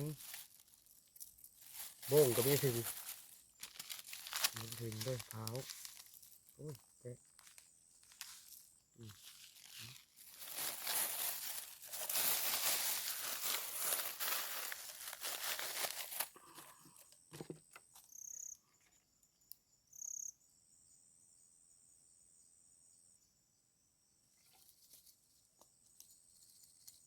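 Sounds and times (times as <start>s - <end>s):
high insect chirps: 0.0s - 16.2s, 17.8s - 27.0s
dense crinkling and crackling: 0.0s - 16.8s
faint high insect drone: 0.0s - 27.0s.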